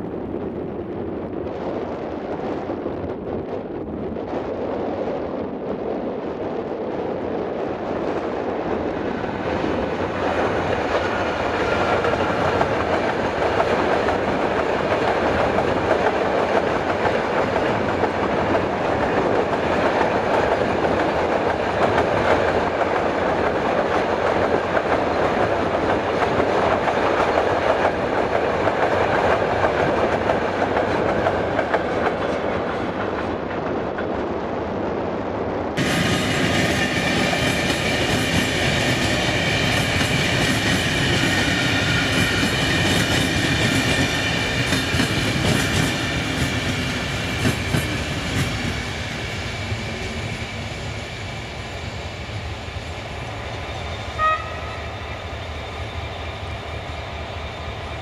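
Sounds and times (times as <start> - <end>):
freight train wheels clattering: 35.8 - 58.0.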